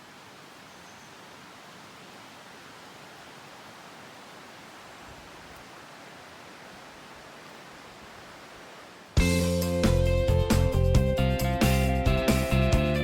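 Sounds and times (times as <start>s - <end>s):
mountain stream rushing: 0.0s - 9.4s.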